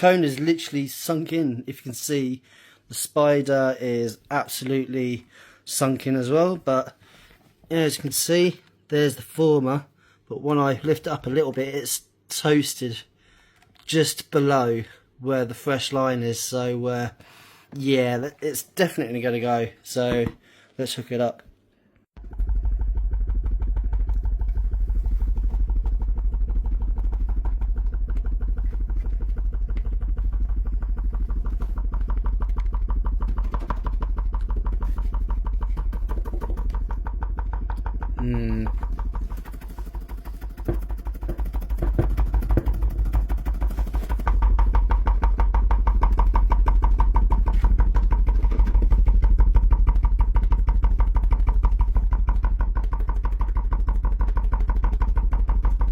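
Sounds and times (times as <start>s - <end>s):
subwoofer deep bass tone: 22.2s - 33.3s.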